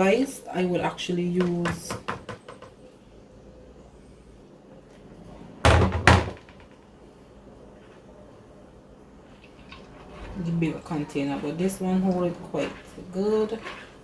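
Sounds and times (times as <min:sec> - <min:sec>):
loud short thuds: 0:05.7 - 0:06.8.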